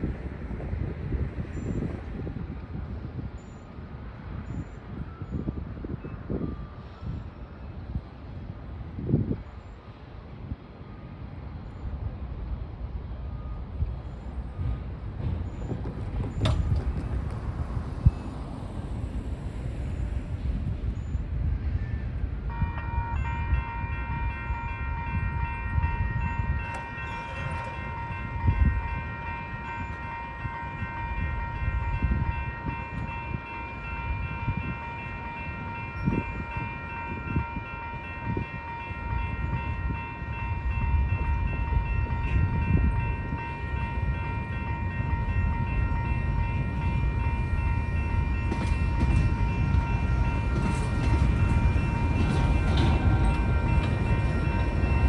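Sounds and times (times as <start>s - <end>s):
train rumbling past: 0.0s - 55.0s
train wheel and coupler knocks: 15.2s - 17.6s, 48.4s - 55.0s
railroad crossing bell ringing: 19.8s - 55.0s.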